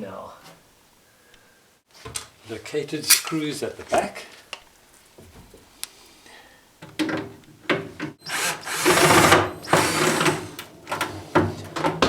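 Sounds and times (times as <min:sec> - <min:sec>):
cordless drill running: 0:08.2 - 0:11.3.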